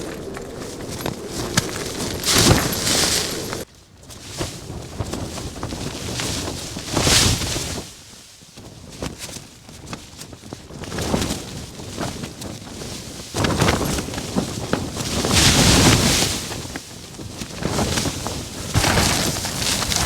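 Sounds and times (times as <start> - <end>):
wind gusting against a tent: 0.0 - 3.7, 8.6 - 20.0
tent fabric snapping: 18.8 - 20.0.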